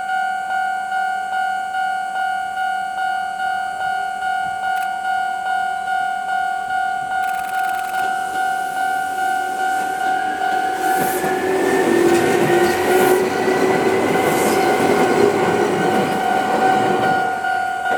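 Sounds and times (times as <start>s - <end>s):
steady high ringing tone: 0.0s - 17.9s
wheels rumbling on rail: 7.0s - 17.9s
electric train motor whine: 7.3s - 17.9s.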